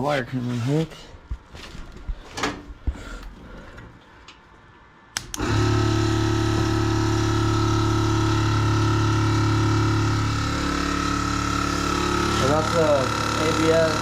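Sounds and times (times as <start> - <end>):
compressor switch click: 5.1 - 5.6
air compressor humming: 5.2 - 14.0.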